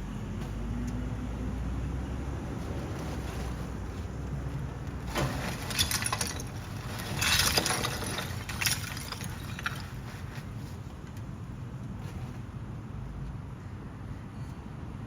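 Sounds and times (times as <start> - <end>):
hard clattering and rattling: 4.7 - 11.1.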